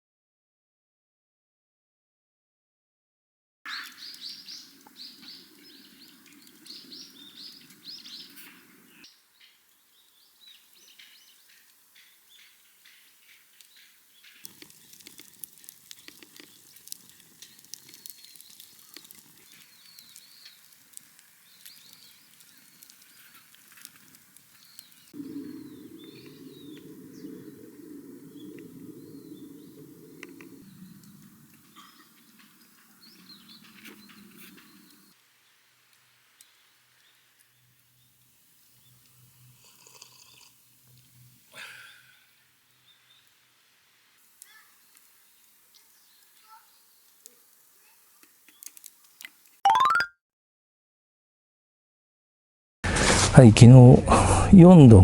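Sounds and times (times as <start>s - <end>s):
small birds chirping: 3.7s - 49.5s.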